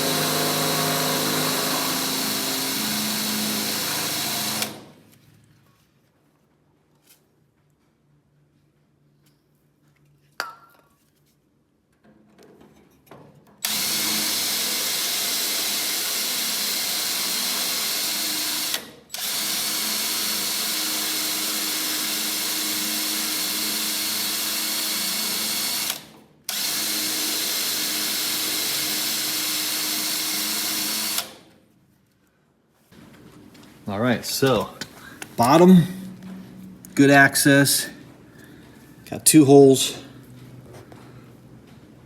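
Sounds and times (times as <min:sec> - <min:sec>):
electric drill boring through steel: 0:00.0 - 0:04.9, 0:13.6 - 0:31.4.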